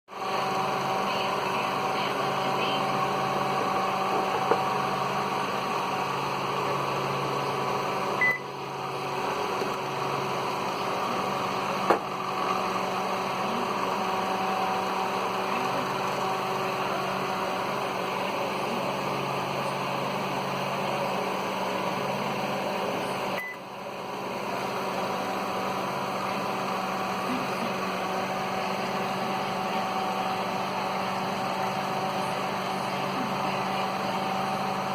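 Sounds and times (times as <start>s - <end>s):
electrical hum: 0.1s - 34.9s
short high beep: 8.2s - 8.5s.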